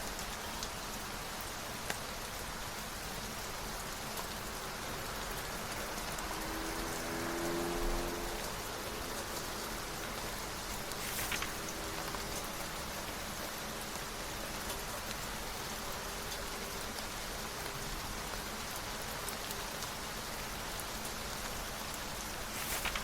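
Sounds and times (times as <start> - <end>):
rain falling: 0.0 - 23.0
book page turning: 10.9 - 12.3, 22.5 - 23.0.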